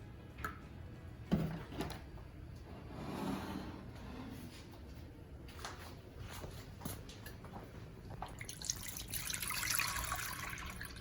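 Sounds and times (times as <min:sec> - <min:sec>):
milk pouring into container: 0:08.2 - 0:11.0.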